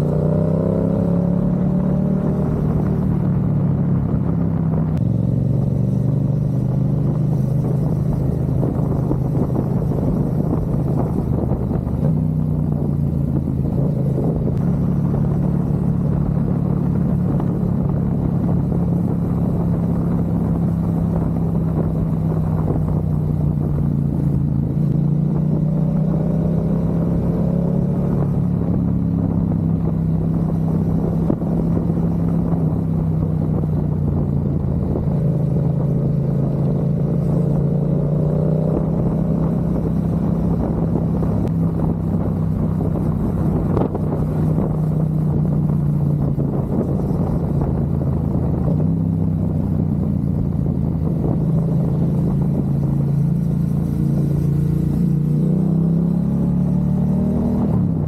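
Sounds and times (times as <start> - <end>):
motorcycle engine cruising: 0.0 - 58.0
road and wind noise: 0.0 - 58.0.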